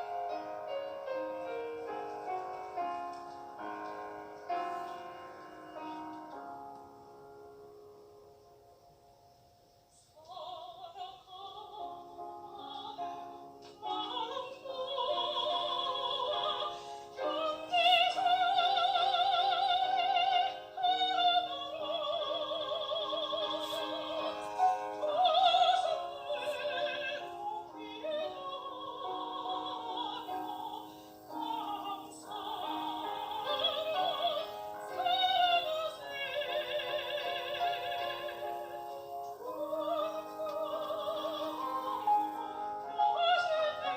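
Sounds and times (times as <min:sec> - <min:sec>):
soprano singing operatically: 0:09.9 - 0:43.9.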